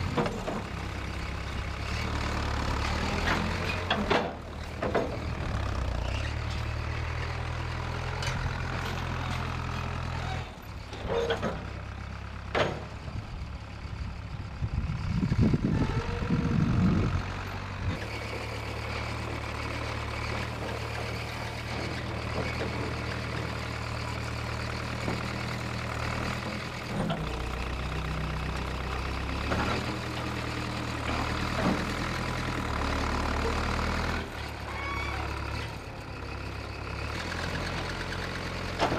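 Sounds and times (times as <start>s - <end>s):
backhoe engine running: 0.0s - 38.9s
sharp knocks and clanks: 3.2s - 5.2s, 12.5s - 13.0s.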